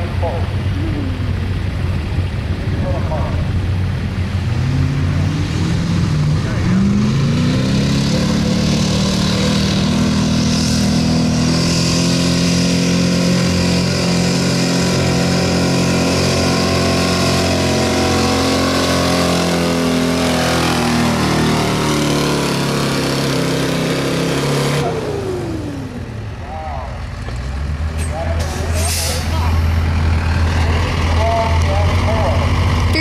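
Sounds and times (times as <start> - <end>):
truck engine at high revs: 0.0 - 33.0.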